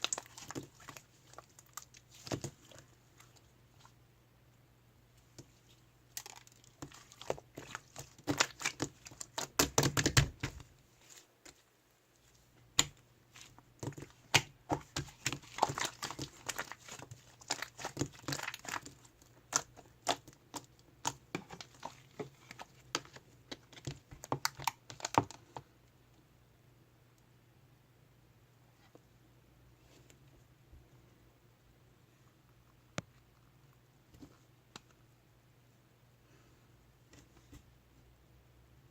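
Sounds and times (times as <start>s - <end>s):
crinkling and crackling clicks: 0.0s - 3.5s.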